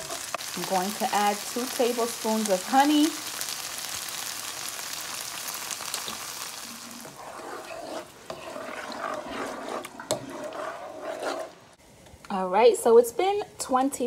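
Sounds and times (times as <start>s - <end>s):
onions sizzling in frying pan: 0.0s - 7.4s
wooden spoon stirring: 6.1s - 11.6s.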